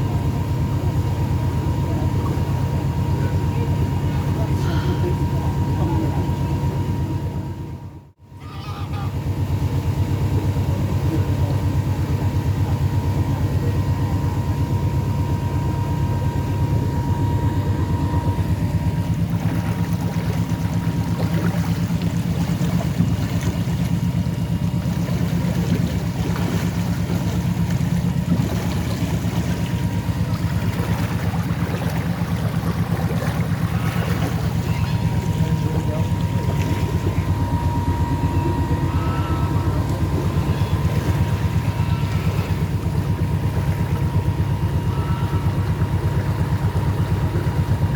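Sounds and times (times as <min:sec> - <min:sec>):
boat engine droning: 0:00.0 - 0:47.9.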